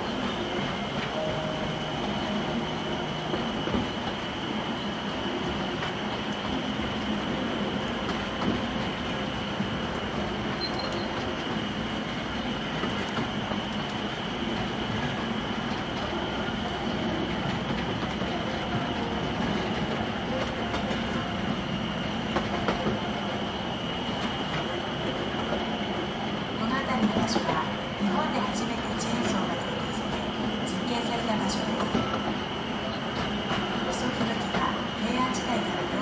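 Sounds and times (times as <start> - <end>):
train wheels rumbling on track: 0.0 - 36.0
high ringing tone: 1.1 - 3.6, 10.6 - 11.2.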